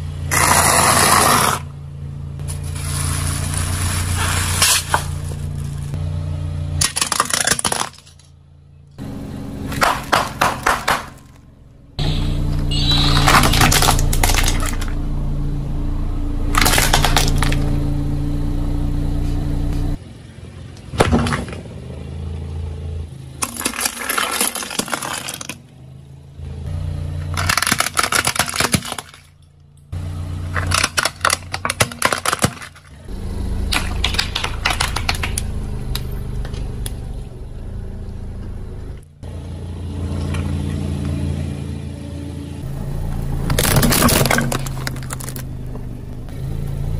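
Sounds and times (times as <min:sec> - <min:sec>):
car engine humming: 0:00.0 - 0:24.0, 0:25.4 - 0:46.9
tyres crushing objects crunching: 0:02.4 - 0:06.0, 0:06.8 - 0:08.4, 0:09.7 - 0:11.5, 0:12.8 - 0:15.0, 0:16.5 - 0:17.8, 0:23.4 - 0:25.8, 0:27.2 - 0:29.5, 0:30.4 - 0:36.6, 0:43.4 - 0:46.0.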